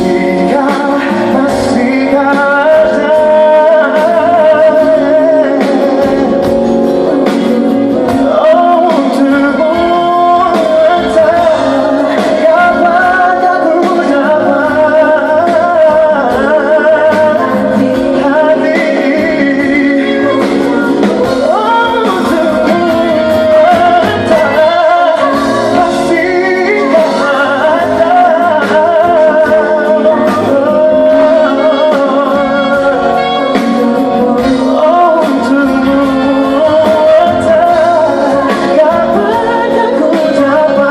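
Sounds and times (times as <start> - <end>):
live pop ballad with band: 0.0 - 40.9.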